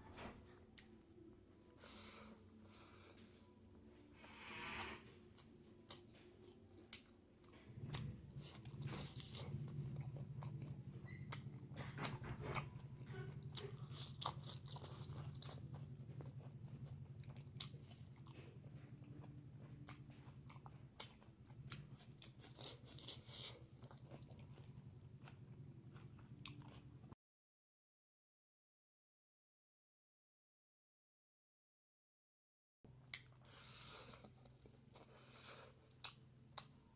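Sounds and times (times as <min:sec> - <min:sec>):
steady low hum: 0:00.0 - 0:27.1
close chewing and crunching: 0:05.3 - 0:27.2, 0:33.0 - 0:36.9.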